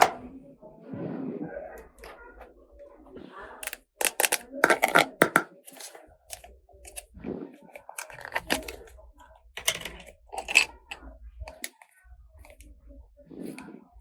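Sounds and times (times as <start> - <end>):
plastic toy pieces clicking: 3.6 - 5.8.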